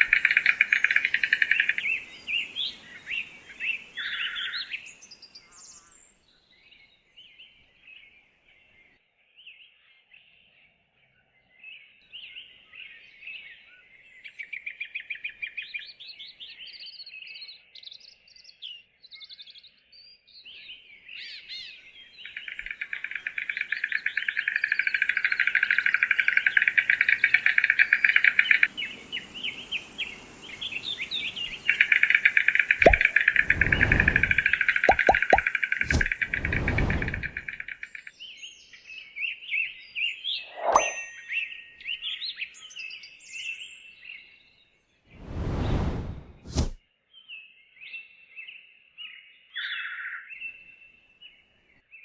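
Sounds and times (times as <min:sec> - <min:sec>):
rapidly pulsing bird trill: 0:00.0 - 0:05.3, 0:22.2 - 0:38.0
birds chirping: 0:00.0 - 0:06.1, 0:22.2 - 0:38.0.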